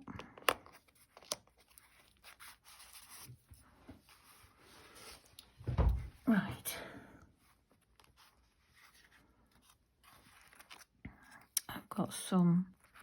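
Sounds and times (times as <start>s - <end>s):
paper rubbing and rustling: 0.7s - 5.3s, 7.4s - 11.0s
dull thump: 5.6s - 6.1s.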